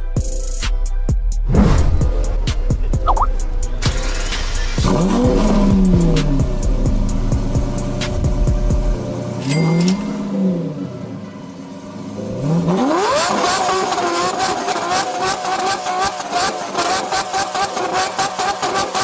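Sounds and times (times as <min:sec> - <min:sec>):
car engine revving: 0:01.5 - 0:09.4, 0:10.1 - 0:19.0.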